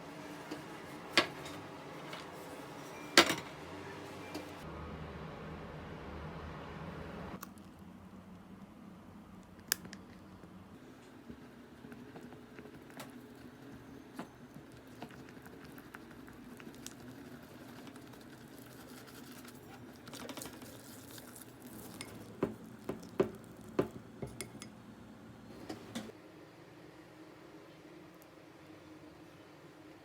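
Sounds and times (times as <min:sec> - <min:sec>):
utensils clinking on dishes: 0:00.5 - 0:03.6.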